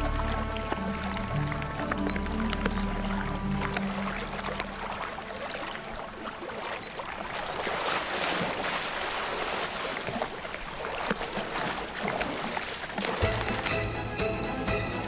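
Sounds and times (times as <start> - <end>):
sharp splashes: 0.0 - 15.0
water splashing and churning: 0.0 - 15.0.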